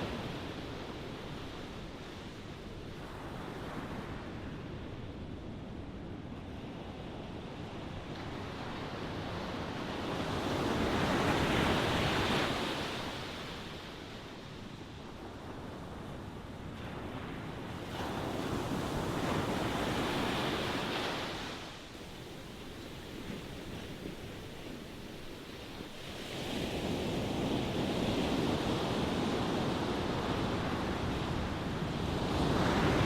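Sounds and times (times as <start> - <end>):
ocean waves breaking on shore: 6.8 - 33.0.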